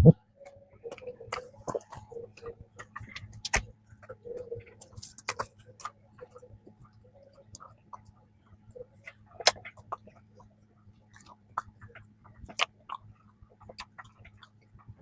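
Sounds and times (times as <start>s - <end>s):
chewing with wet mouth clicks: 0.4s - 15.0s.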